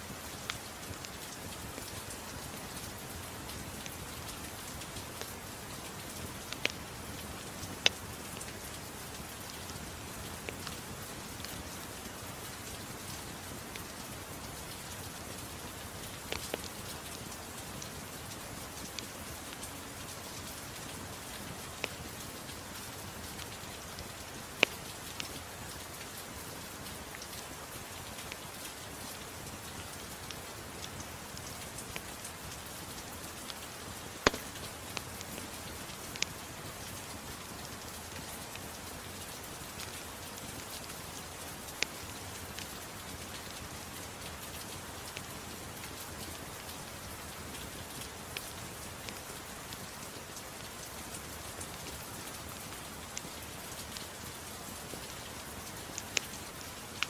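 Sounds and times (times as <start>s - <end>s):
steady rainfall: 0.0s - 57.0s
wood fire crackling and popping: 31.7s - 36.5s.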